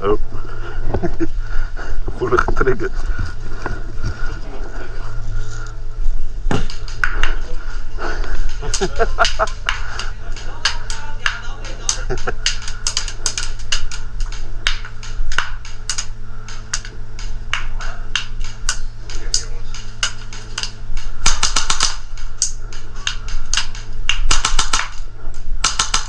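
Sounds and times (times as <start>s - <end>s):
airsoft guns firing: 6.5s - 26.0s.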